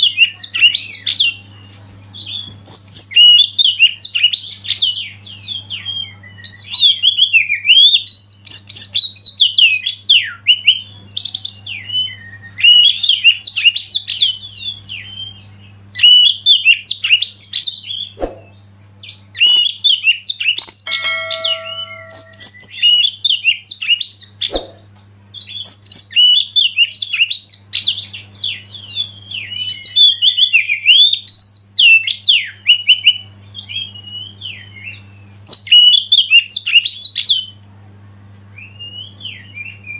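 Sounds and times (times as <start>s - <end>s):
bird singing whistles and chirps: 0.0s - 37.6s, 38.4s - 39.9s.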